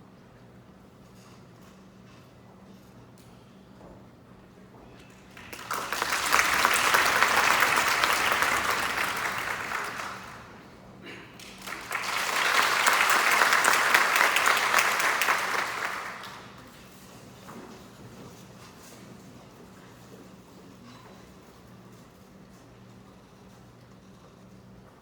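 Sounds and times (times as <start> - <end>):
many hands clapping: 5.3 - 10.7, 11.4 - 16.8.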